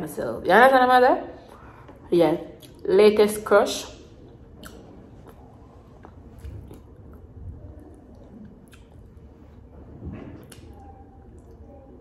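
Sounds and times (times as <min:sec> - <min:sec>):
faint wet chewing: 0:02.6 - 0:02.8, 0:04.2 - 0:12.0.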